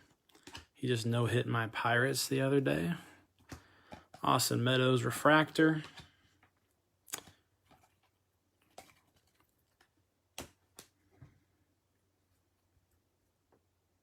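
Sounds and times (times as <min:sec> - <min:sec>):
trading cards flipping: 0:07.1 - 0:11.0.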